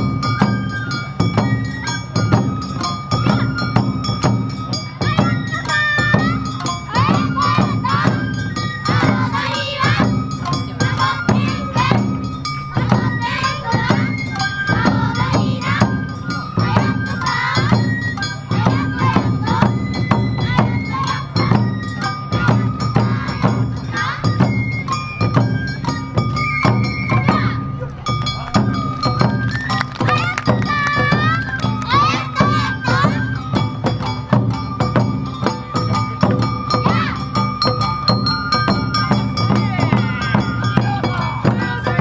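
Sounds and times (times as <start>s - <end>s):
bamboo flute melody: 0.0s - 42.0s
taiko drums: 0.0s - 42.0s
dancers shouting calls: 5.0s - 12.2s, 12.8s - 21.6s, 22.4s - 24.4s, 27.1s - 34.6s, 36.7s - 37.5s, 38.8s - 42.0s.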